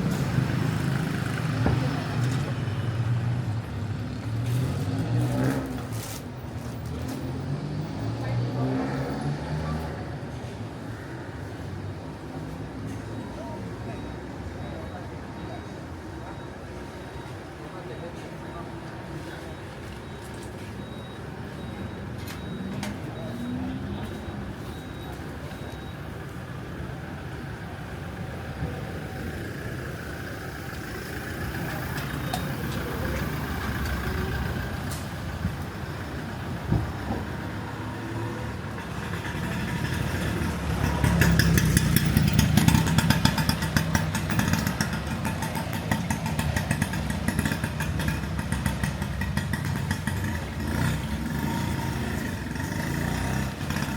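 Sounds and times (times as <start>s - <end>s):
busy street traffic: 0.0s - 53.9s
motorcycle engines: 0.0s - 53.9s.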